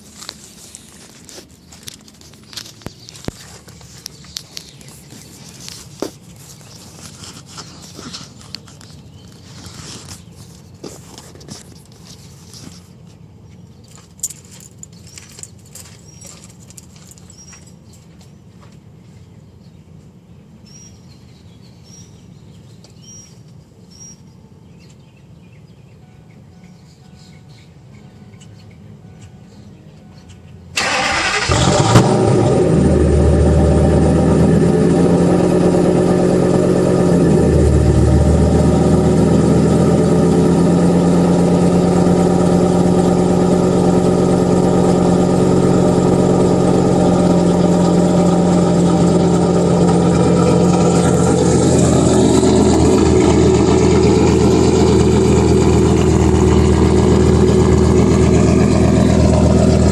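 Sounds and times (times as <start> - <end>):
engine cranking and starting: 30.8 - 34.8
engine idling: 30.8 - 59.9.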